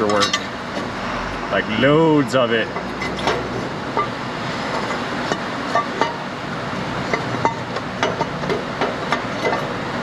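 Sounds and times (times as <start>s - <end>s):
metal knocking and clinking: 0.0s - 0.9s, 2.7s - 6.3s, 7.0s - 9.8s
steady background hiss: 0.0s - 10.0s.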